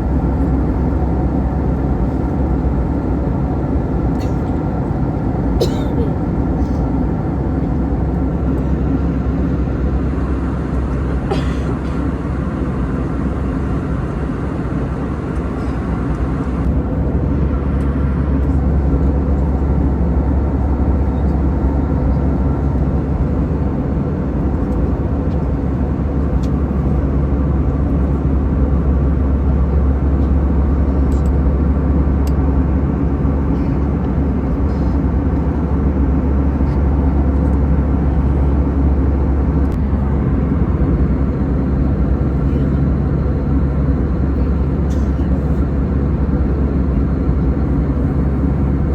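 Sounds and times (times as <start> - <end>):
airplane cabin engine drone: 0.0 - 48.9.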